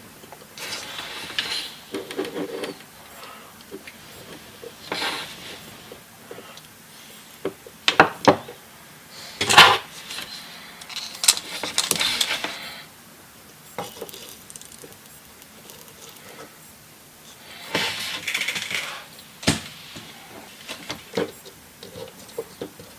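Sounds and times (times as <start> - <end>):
small hard objects clicking: 10.8 - 12.3, 13.8 - 16.5.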